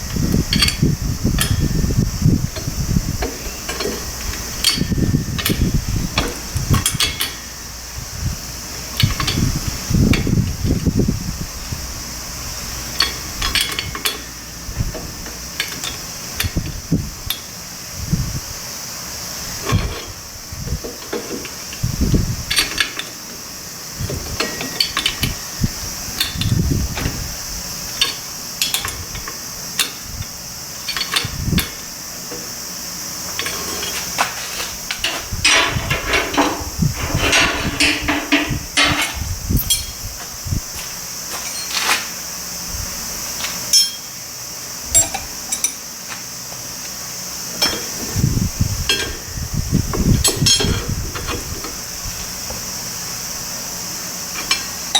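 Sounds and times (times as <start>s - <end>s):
hand tools clinking on metal: 2.6s - 5.6s, 6.2s - 7.6s, 12.9s - 14.4s, 15.6s - 16.6s, 22.5s - 23.2s, 24.3s - 25.6s, 27.9s - 30.1s, 30.8s - 32.4s, 33.4s - 40.0s, 41.3s - 42.1s, 43.7s - 44.2s, 44.9s - 45.8s, 47.6s - 48.0s, 48.9s - 49.3s, 50.2s - 50.9s, 54.4s - 54.9s.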